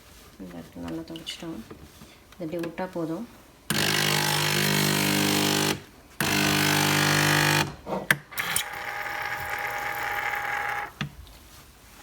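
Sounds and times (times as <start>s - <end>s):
coffee machine pump buzzing: 3.7s - 7.7s, 8.4s - 11.0s.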